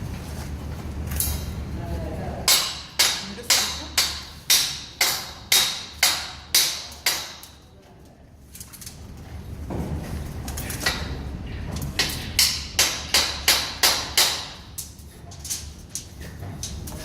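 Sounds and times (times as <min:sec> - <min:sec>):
hammer strikes: 0:02.5 - 0:07.6, 0:12.0 - 0:14.7.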